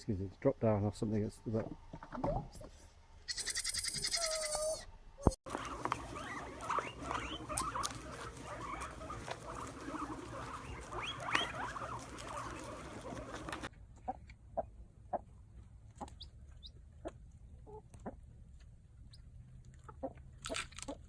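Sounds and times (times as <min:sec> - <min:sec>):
small animals squeaking and chirping: 0:03.2 - 0:14.2.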